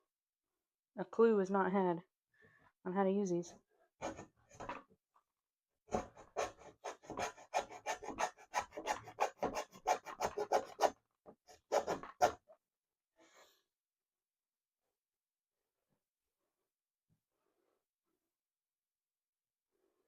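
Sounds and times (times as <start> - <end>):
hacksaw cutting board: 4.0 - 4.8, 5.9 - 10.9, 11.5 - 12.4.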